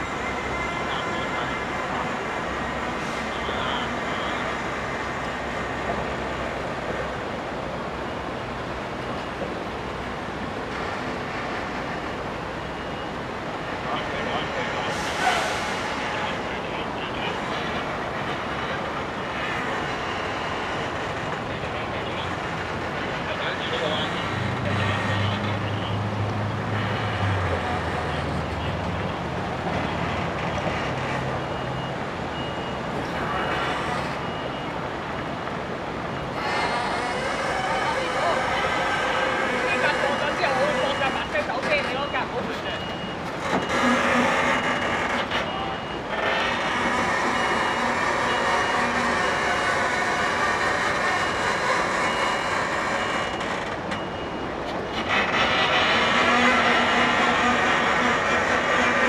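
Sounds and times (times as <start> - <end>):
heavy vehicle engine hum: 0.0 - 59.0
traffic noise: 0.0 - 59.0
high warning beeps: 12.1 - 22.4, 30.0 - 34.9, 36.1 - 55.2.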